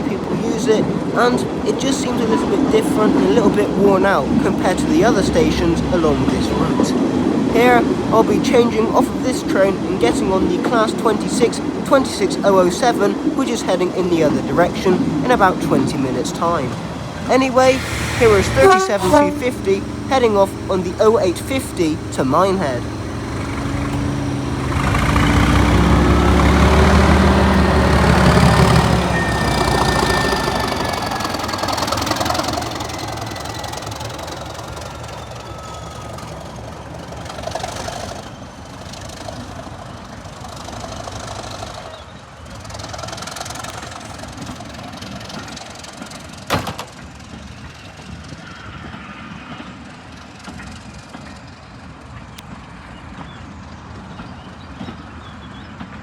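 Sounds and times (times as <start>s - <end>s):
diesel locomotive engine working: 0.0s - 56.0s
high whistle sliding down: 17.4s - 24.2s, 28.8s - 32.1s.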